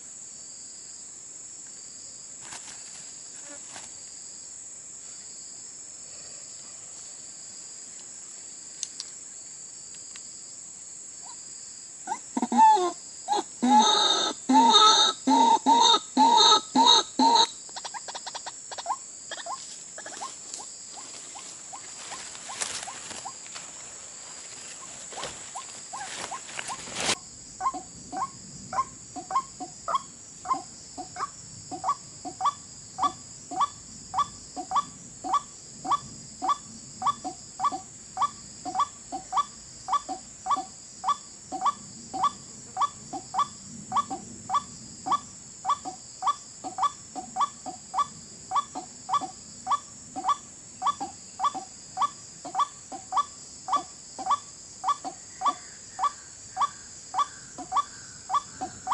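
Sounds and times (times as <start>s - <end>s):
waterhen croaking call: 12.1s - 20.3s.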